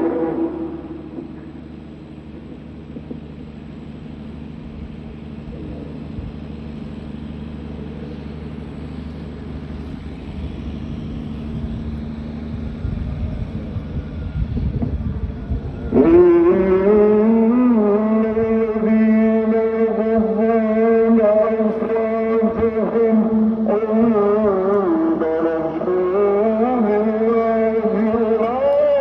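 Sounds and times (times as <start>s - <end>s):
voice echo: 0.0s - 3.1s, 15.9s - 29.0s
low rumbling room hum: 0.0s - 29.0s.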